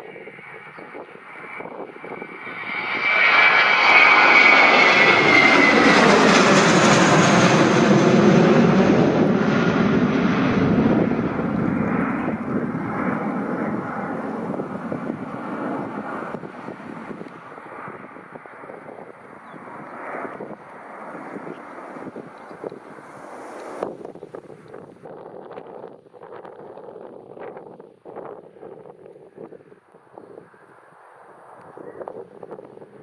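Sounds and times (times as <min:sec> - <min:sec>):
aircraft engines passing: 0:00.0 - 0:27.1
high engine whine: 0:01.6 - 0:24.0.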